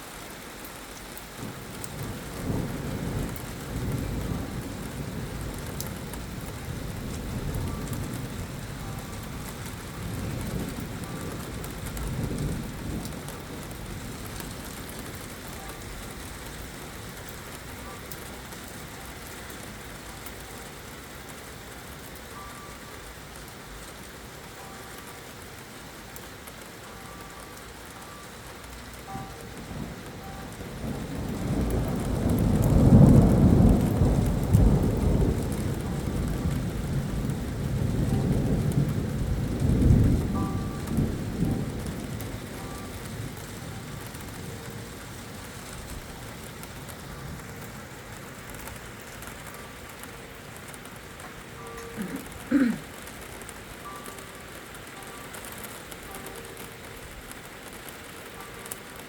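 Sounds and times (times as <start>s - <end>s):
steady rain falling: 0.0s - 59.0s
low rumble of thunder: 1.4s - 22.1s, 29.0s - 50.8s.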